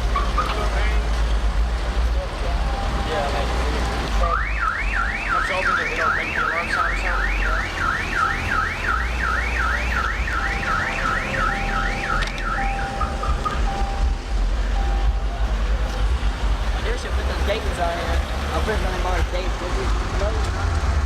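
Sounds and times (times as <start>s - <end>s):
car alarm siren: 2.5s - 15.6s
low rumble: 10.1s - 17.3s.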